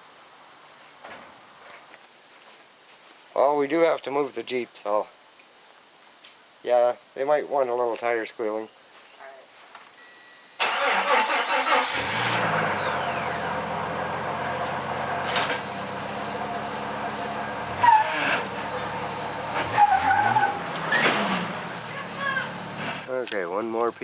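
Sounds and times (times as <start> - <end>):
car engine starting and idling: 10.6 - 23.1
short high squeaks: 17.3 - 23.1.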